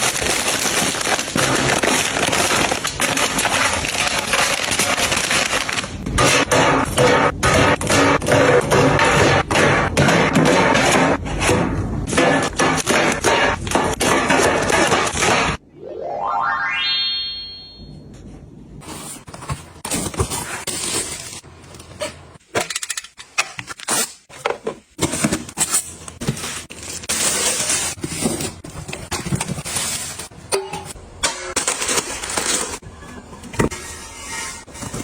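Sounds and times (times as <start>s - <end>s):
packaging rustling: 0.0s - 6.0s.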